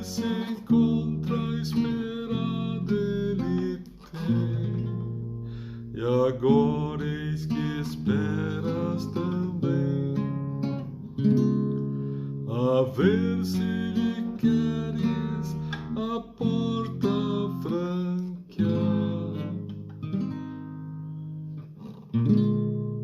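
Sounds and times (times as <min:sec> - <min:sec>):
man singing long notes: 0:00.0 - 0:05.2, 0:05.9 - 0:10.5, 0:12.5 - 0:19.7
acoustic guitar strumming: 0:00.0 - 0:23.0.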